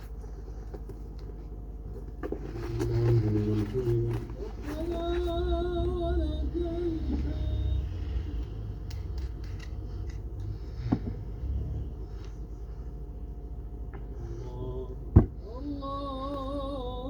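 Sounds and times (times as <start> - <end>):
low hum: 0.0 - 17.0
man chanting recitation: 2.4 - 8.7, 14.1 - 17.0
scattered clicks: 8.4 - 10.5.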